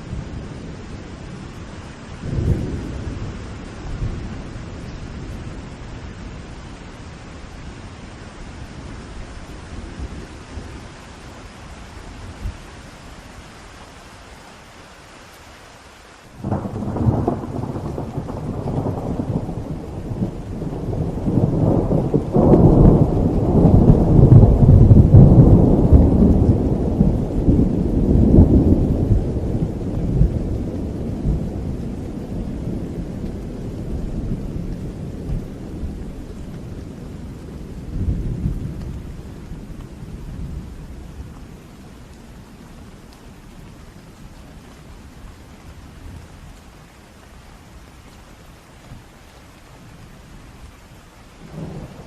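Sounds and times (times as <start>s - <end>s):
thunder rumbling: 0.0s - 6.7s, 16.4s - 46.6s, 51.4s - 52.0s
steady rain: 0.0s - 52.0s.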